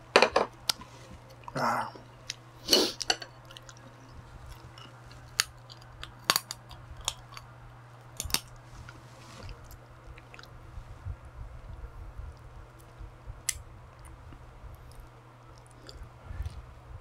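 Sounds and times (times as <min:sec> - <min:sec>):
wet crunchy chewing: 0:02.2 - 0:10.5
crab shell cracking between teeth: 0:04.5 - 0:08.6.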